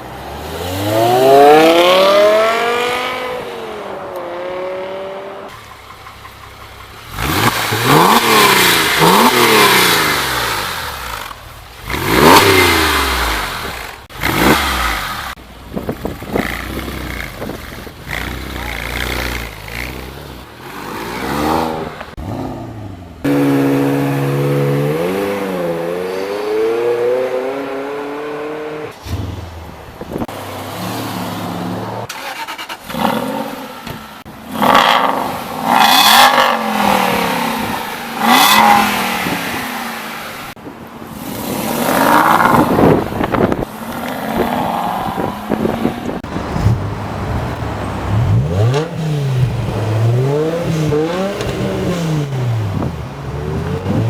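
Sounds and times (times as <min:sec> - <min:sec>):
supercar engine revving: 0:00.3 - 0:05.6, 0:06.6 - 0:29.3, 0:44.1 - 0:54.0
car engine accelerating hard: 0:06.9 - 0:28.9, 0:46.2 - 0:54.0.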